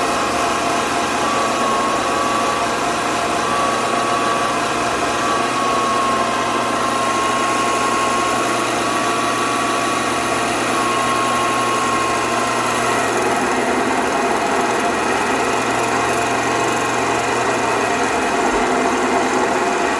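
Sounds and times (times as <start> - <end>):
machine running: 0.0 - 19.9.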